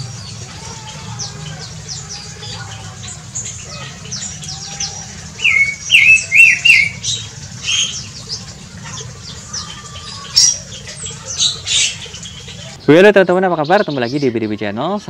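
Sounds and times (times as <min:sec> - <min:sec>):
birds chirping: 0:00.0 - 0:15.0
loud sharp bird calls: 0:00.0 - 0:15.0
low background noise: 0:00.0 - 0:15.0.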